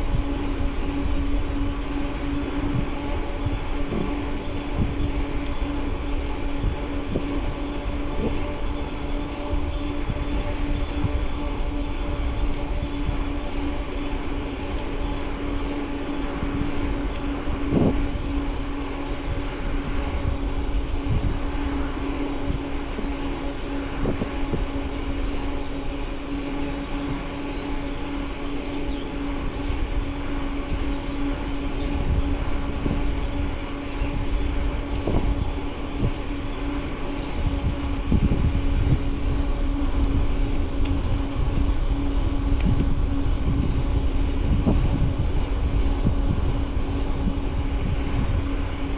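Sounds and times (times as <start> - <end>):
steady hum: 0.0 - 48.9
wind on microphone: 0.0 - 48.9.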